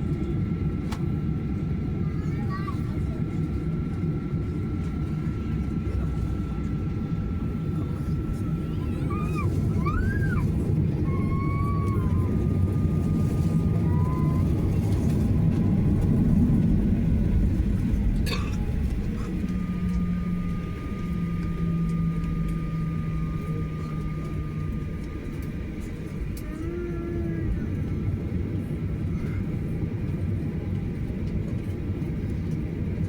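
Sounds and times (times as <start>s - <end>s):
airliner cabin rumble: 0.0s - 33.0s
thin steady whine: 5.6s - 28.4s.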